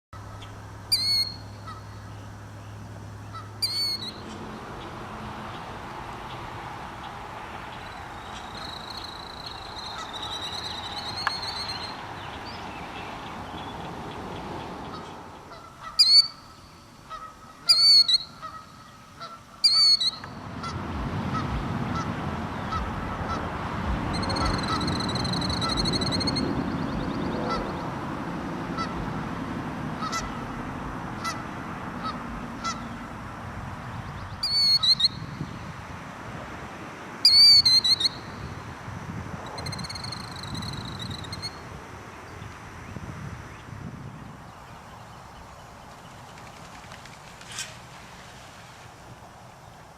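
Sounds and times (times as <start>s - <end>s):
shrill bird calls: 0.2s - 4.3s, 7.8s - 13.8s, 14.9s - 20.4s, 24.1s - 27.8s, 34.3s - 35.3s, 37.2s - 38.4s, 39.6s - 41.6s
low steady rumble: 0.2s - 36.6s.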